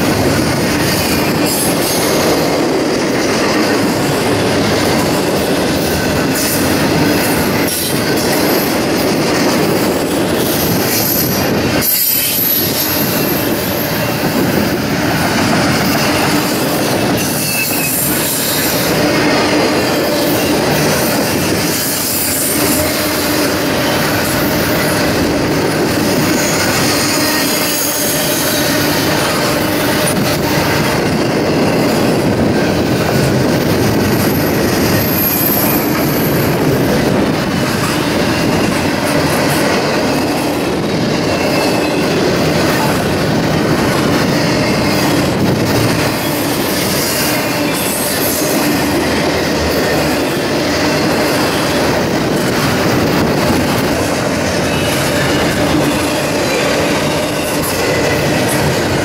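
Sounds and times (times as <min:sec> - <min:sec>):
train wheels on rails: 0:00.0 - 0:59.0
wheel flanges squealing: 0:03.7 - 0:33.3, 0:33.9 - 0:59.0.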